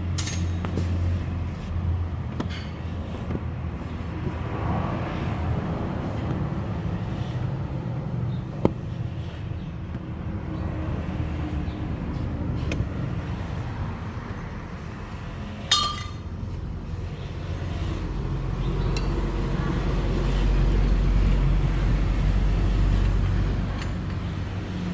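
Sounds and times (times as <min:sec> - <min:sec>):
ringing metallic clink: 0:15.7 - 0:16.3.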